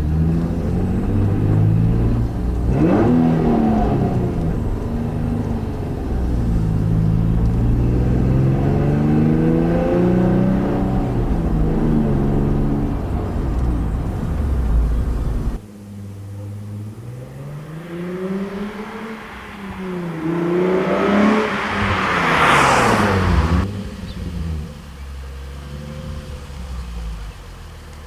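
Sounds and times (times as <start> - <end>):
car engine revving and idling: 0.0 - 28.0.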